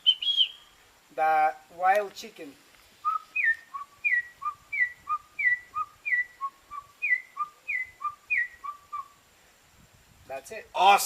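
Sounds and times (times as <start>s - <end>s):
man whistling bird call: 0.0s - 0.8s, 3.0s - 9.2s.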